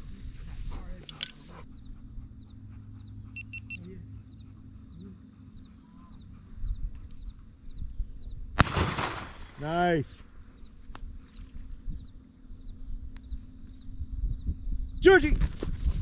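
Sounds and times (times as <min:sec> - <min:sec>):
insects buzzing: 0:00.0 - 0:16.0
shotgun shot with echo: 0:08.6 - 0:09.9.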